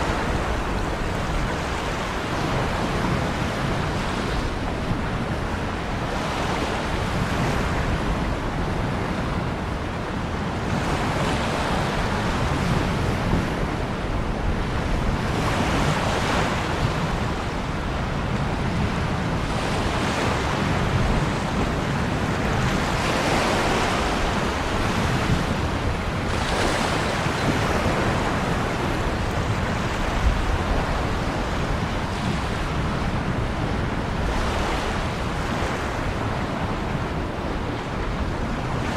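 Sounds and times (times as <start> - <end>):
low wind rumble: 0.0 - 38.9
ocean waves on shore: 0.0 - 38.9.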